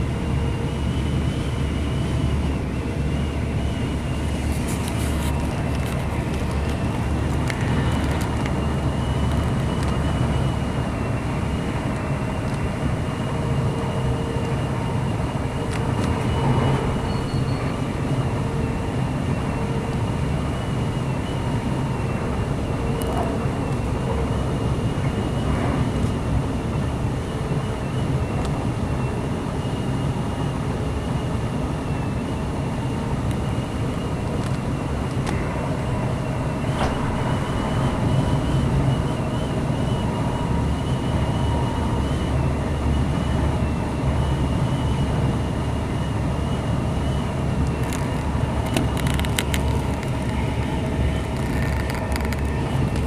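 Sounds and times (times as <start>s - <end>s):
train rumbling on rails: 0.0s - 53.0s
high whine: 32.2s - 53.0s.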